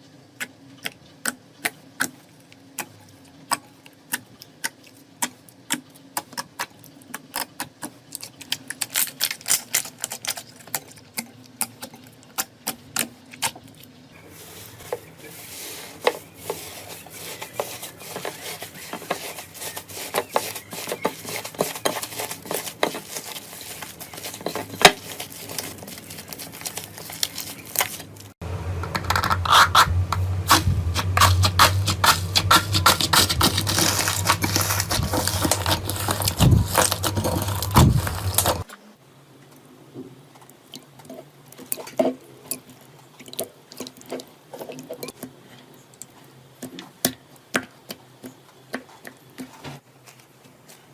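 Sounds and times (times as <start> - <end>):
low hum: 28.4 - 38.6.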